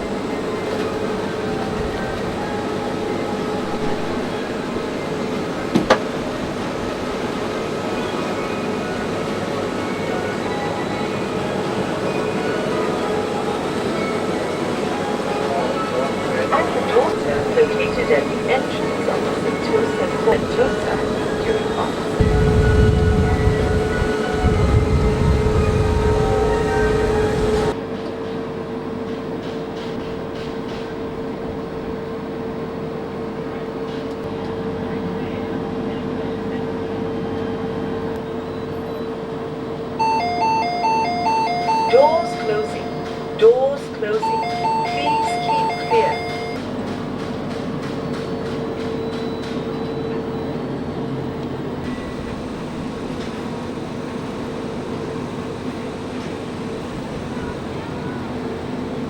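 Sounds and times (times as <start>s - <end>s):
electric train hum: 0.0s - 59.0s
train rolling noise: 0.0s - 59.0s.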